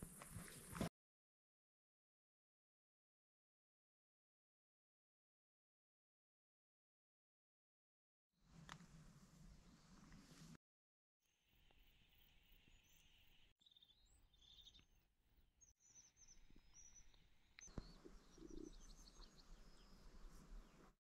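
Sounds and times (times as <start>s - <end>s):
small birds chirping: 11.5s - 21.0s.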